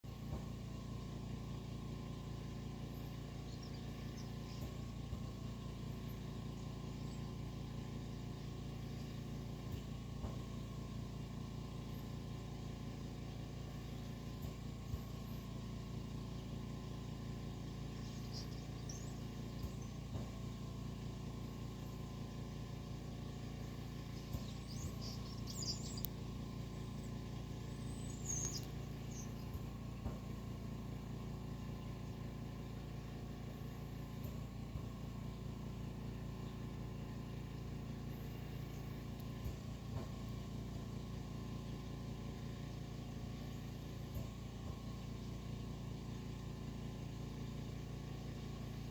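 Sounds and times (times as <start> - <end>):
steady low hum: 0.0 - 48.9
starlings chirping and whistling: 3.1 - 5.0, 17.7 - 20.2, 23.8 - 29.7.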